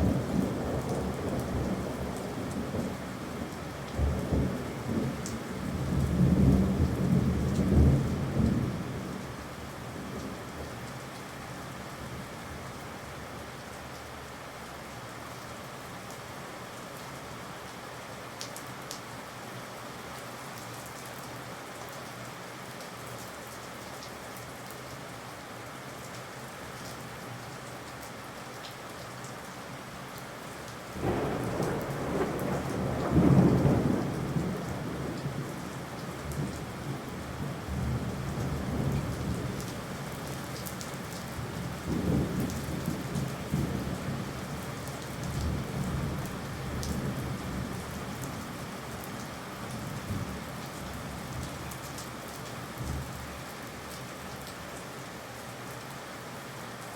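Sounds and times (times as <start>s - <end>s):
steady rain: 0.0s - 56.9s
thunder rumbling: 31.0s - 39.7s.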